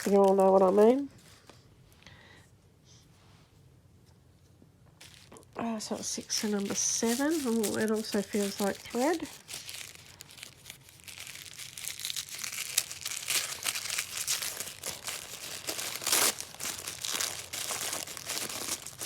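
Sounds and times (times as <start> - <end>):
wrapping paper crinkling: 0.0 - 1.1, 5.0 - 19.0.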